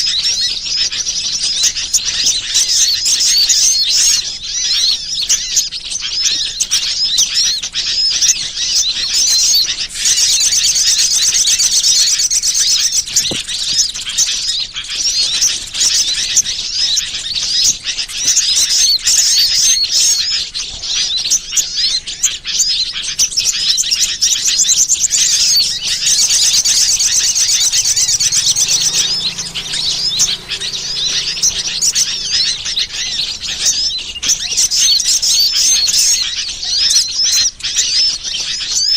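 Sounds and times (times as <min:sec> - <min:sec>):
small birds chirping: 0:00.0 - 0:38.9
bird trilling runs: 0:09.1 - 0:20.3, 0:22.2 - 0:37.1.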